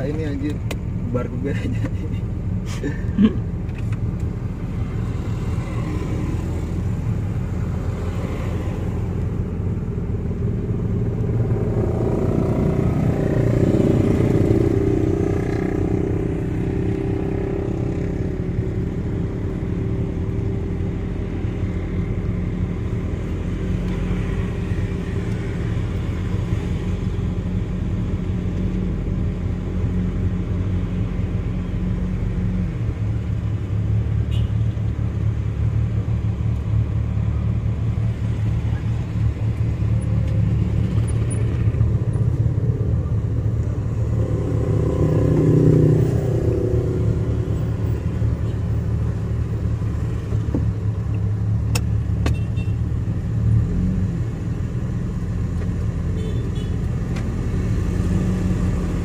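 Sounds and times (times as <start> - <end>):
street traffic: 0.0 - 59.0
vehicle passing: 38.1 - 48.3.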